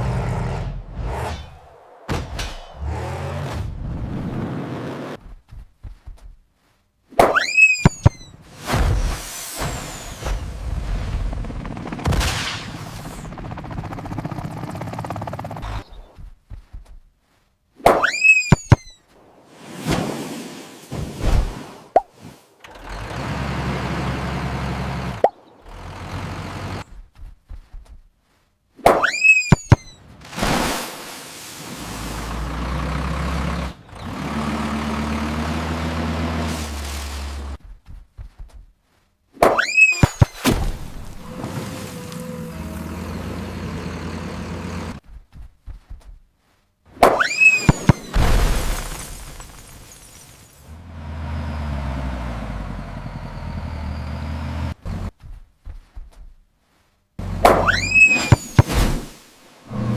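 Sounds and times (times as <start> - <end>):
heavy vehicle engine humming: 22.7 - 26.9, 32.0 - 37.5, 40.8 - 45.0, 50.7 - 55.2.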